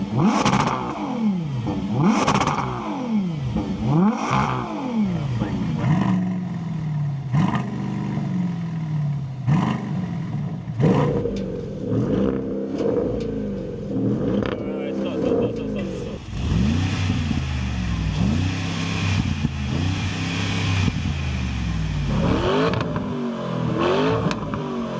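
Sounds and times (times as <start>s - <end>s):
engine revving in blips: 0.0s - 24.9s.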